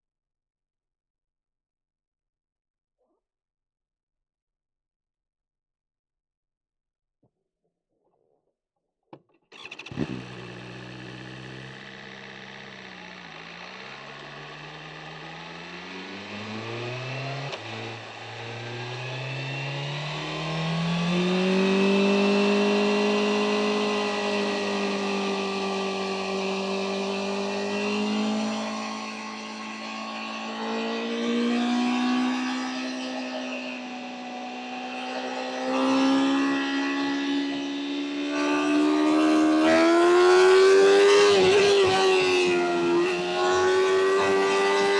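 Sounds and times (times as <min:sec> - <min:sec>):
motorcycle engine through gears: 0:09.5 - 0:44.9.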